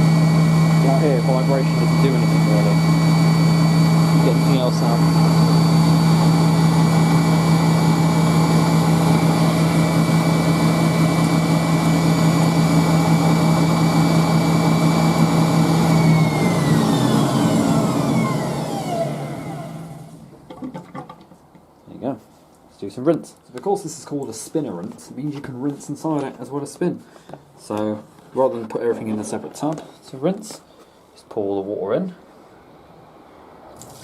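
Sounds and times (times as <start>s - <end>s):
spin dryer motor whining: 0.0s - 20.3s.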